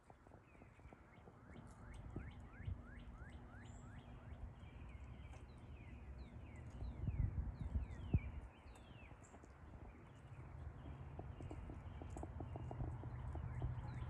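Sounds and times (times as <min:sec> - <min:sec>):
songbird chirping and whistling: 0:00.5 - 0:10.5.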